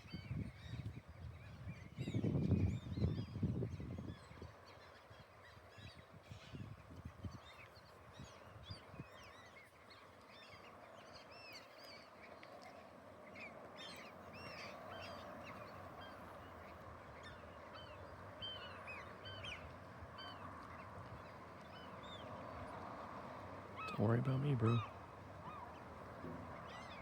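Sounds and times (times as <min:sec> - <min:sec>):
flock of birds calling: 0:23.8 - 0:27.0.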